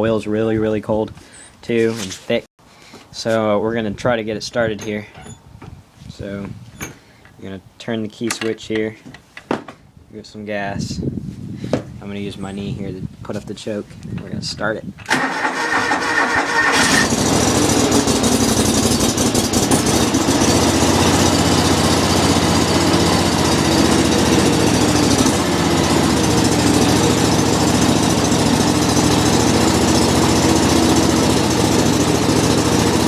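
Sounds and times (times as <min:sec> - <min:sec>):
lawn tractor engine running: 0:15.1 - 0:33.0.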